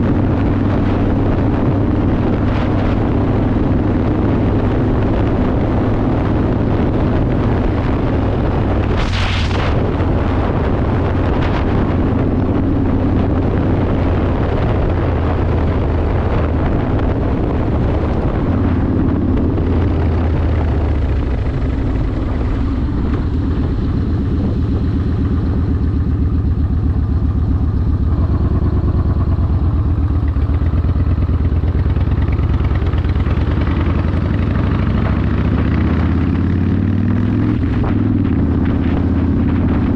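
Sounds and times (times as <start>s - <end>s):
motorcycle engine throbbing: 0.0s - 39.9s
brief rush of noise: 8.9s - 9.9s.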